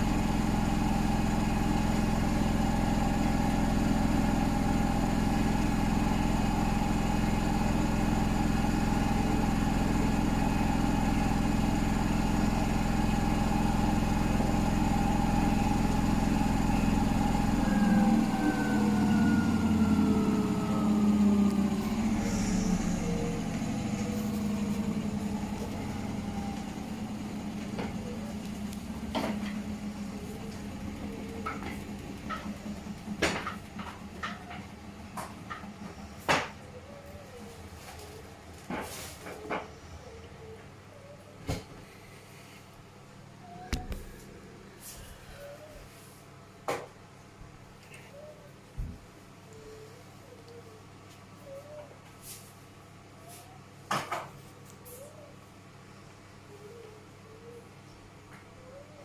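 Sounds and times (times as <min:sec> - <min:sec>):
washing machine spinning: 0:00.0 - 0:41.7.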